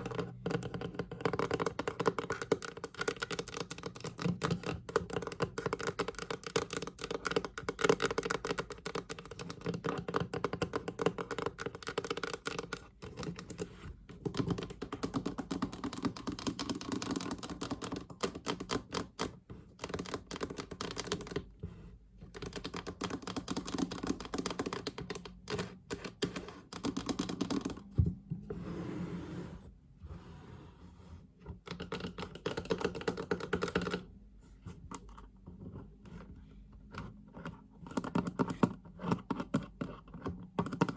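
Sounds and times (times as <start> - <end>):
fast tapping on wooden chest: 14.2 - 21.5.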